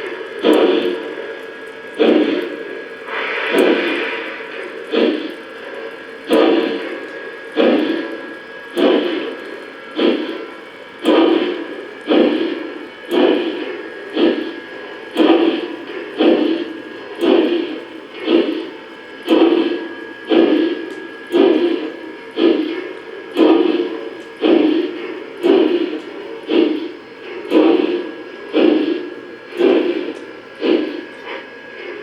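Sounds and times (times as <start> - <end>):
electronic steam chuffing: 0.0 - 32.0.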